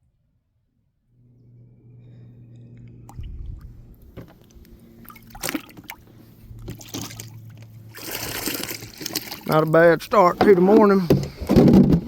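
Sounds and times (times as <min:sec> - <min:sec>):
low electric hum: 0:00.0 - 0:12.0
water splashing and dripping: 0:04.4 - 0:06.0, 0:06.6 - 0:09.8.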